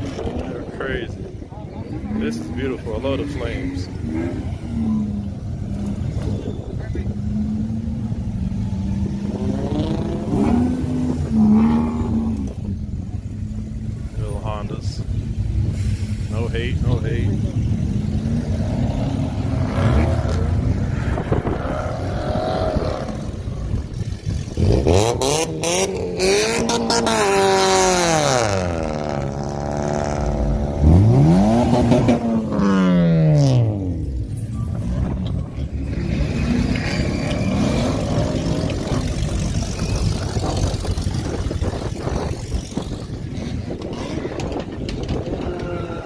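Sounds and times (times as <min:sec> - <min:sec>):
traffic noise: 0:00.0 - 0:46.0
car engine revving: 0:01.8 - 0:46.0
exhaust pops: 0:36.6 - 0:46.0.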